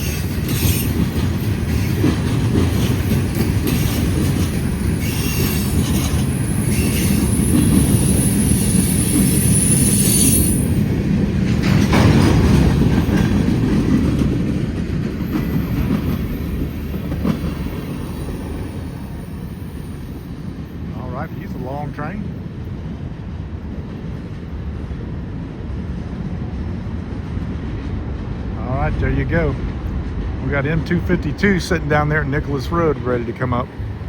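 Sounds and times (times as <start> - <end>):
high wheel squeal: 0.0 - 1.0, 3.3 - 10.8, 15.4 - 20.7
freight train rumbling: 0.0 - 34.0.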